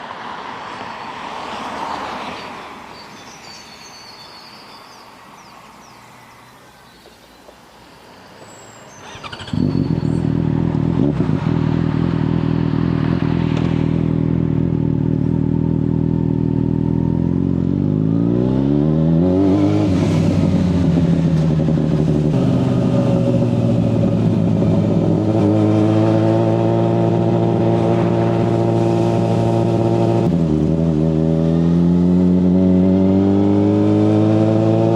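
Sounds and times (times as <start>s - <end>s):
passing vehicle: 0.0s - 34.9s
motorcycle engine starting and idling: 8.9s - 17.4s
engine revving: 9.0s - 34.9s.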